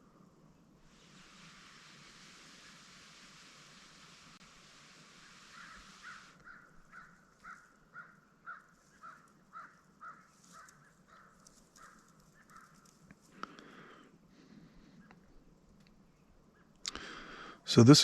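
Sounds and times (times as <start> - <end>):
steady hiss: 0.0 - 7.4
faint bird calls: 5.1 - 14.0.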